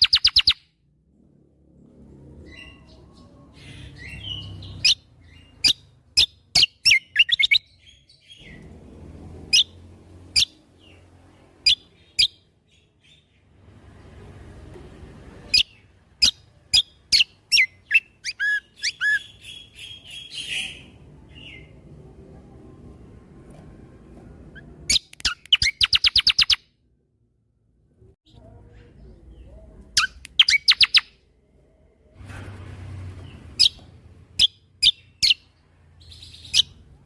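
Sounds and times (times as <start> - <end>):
songbird whistling sharp notes: 0.0 - 0.6, 24.6 - 26.6.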